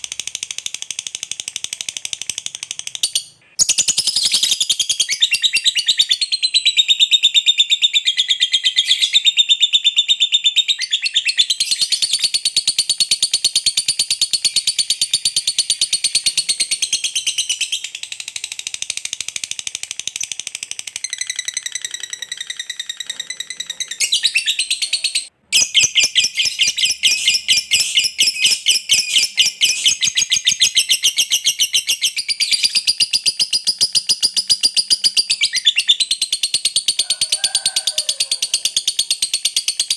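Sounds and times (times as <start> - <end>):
lovebird chattering trill: 20.1 - 37.3.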